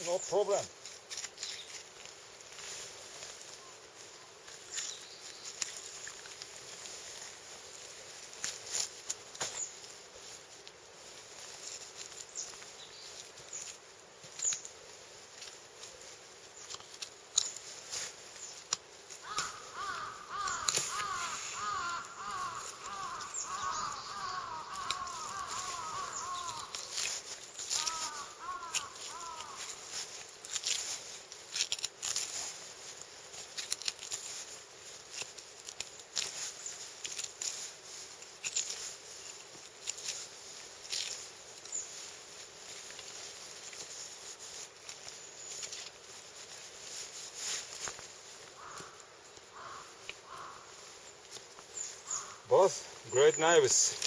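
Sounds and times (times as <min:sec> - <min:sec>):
bird calling: 0:19.2 - 0:30.1, 0:48.5 - 0:54.0.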